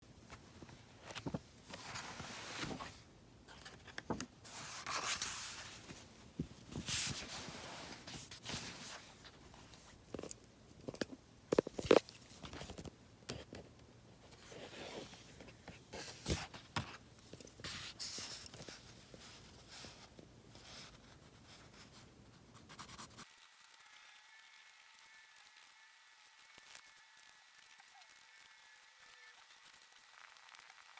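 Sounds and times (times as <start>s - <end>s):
pencil scratching on paper: 22.6s - 23.3s.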